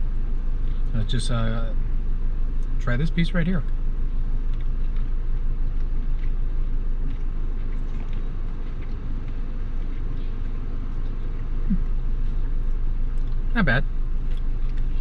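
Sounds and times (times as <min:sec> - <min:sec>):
deep hum: 0:00.0 - 0:15.0
faint small noises: 0:00.0 - 0:15.0
steady low rumble: 0:00.0 - 0:15.0.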